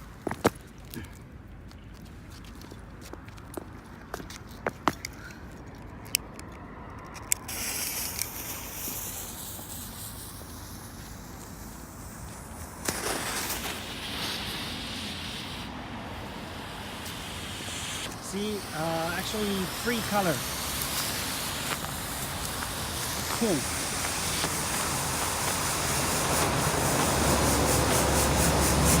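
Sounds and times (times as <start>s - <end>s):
firework crackles: 7.4s - 29.0s
smoke venting hiss: 7.4s - 29.0s.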